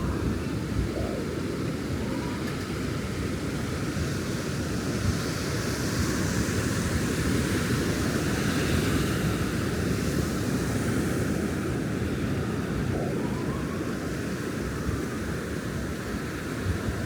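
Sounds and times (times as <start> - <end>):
wind buffeting microphone: 0.0 - 4.3.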